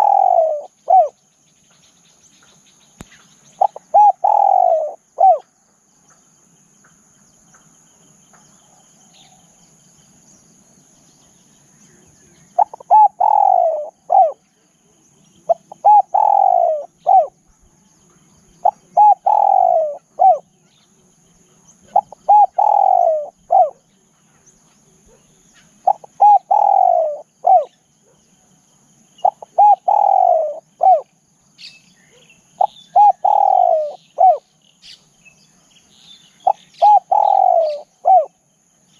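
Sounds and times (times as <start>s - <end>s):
dove cooing: 0.0s - 1.2s, 3.6s - 5.5s, 12.3s - 14.6s, 15.4s - 17.8s, 18.6s - 20.8s, 21.5s - 24.0s, 24.8s - 28.2s, 29.2s - 31.1s, 32.5s - 34.5s, 36.4s - 38.4s
high insect whine: 0.0s - 38.9s.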